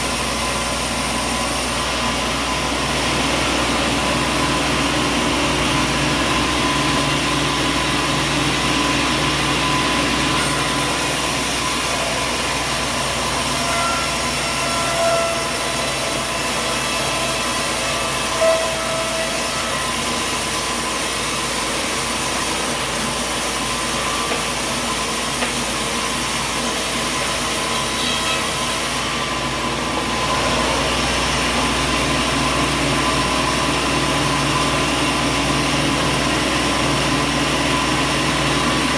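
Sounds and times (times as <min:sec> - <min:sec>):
sawmill machinery drone: 0:00.0 - 0:38.9
short squeaks: 0:13.4 - 0:16.1.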